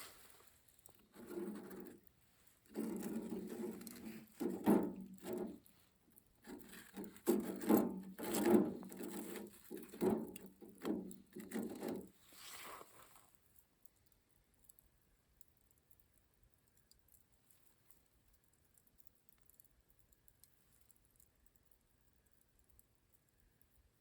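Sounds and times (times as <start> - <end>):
rough scraping and rubbing: 1.1 - 2.0, 2.7 - 5.6, 6.4 - 10.4, 11.4 - 13.2.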